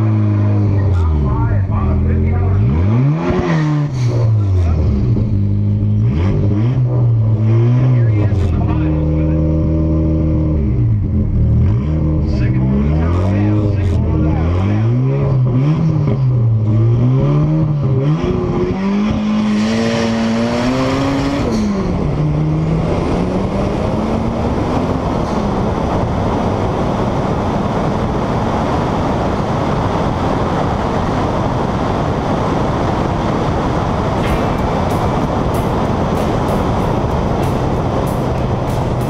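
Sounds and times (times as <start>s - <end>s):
car engine revving: 0.0s - 39.0s
wind on microphone: 20.2s - 39.0s.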